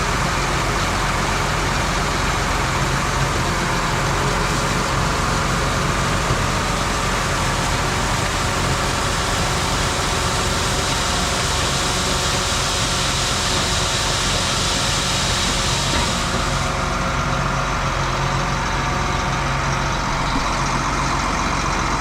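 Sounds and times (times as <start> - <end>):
truck engine idling: 0.0 - 22.0
broad hiss: 8.8 - 16.8.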